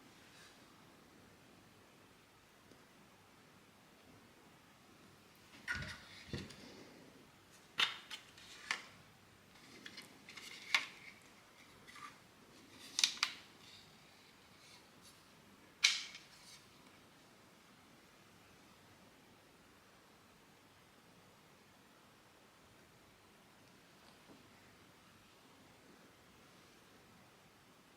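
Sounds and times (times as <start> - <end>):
plastic parts clicking and snapping: 7.8 - 9.0, 9.6 - 12.2, 12.8 - 13.8, 15.8 - 16.3.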